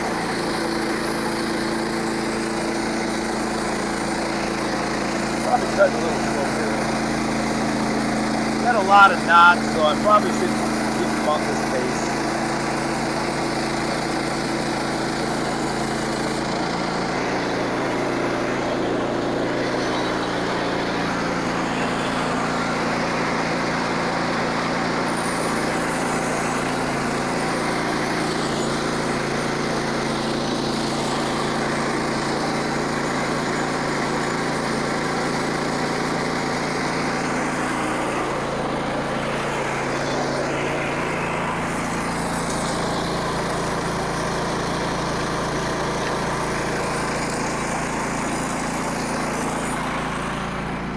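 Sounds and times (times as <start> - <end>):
small gas engine under load: 0.0 - 50.9
saw blade hissing through wood: 25.0 - 30.0.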